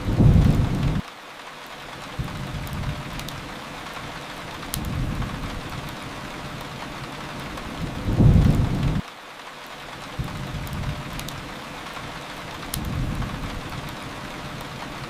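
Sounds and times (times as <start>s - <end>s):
thunder rumbling: 0.0s - 1.0s, 2.2s - 3.5s, 4.6s - 9.0s, 10.2s - 11.5s, 12.6s - 15.0s
steady rain: 0.0s - 15.0s.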